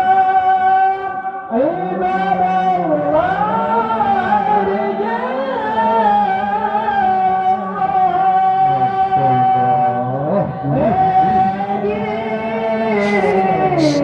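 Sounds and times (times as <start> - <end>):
person singing ornamented melody: 13.0 - 14.0.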